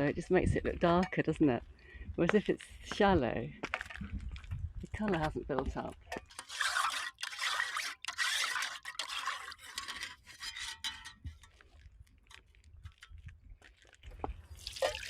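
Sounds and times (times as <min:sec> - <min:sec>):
pan being scrubbed: 0:06.1 - 0:11.6.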